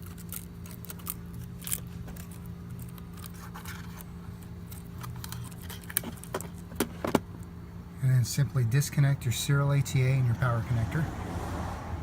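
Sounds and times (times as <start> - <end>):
adhesive tape peeling: 0.0 - 4.1
steady low hum: 0.0 - 12.0.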